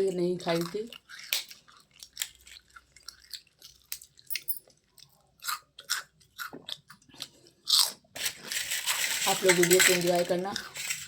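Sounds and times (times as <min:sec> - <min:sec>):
person chewing crunchy food: 0:00.5 - 0:08.5.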